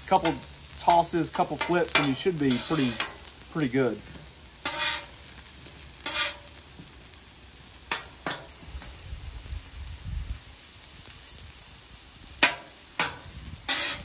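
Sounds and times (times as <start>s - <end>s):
fries sizzling on griddle: 0.0s - 14.0s
metal spatula scraping griddle: 0.1s - 3.4s, 4.0s - 6.6s, 12.4s - 14.0s.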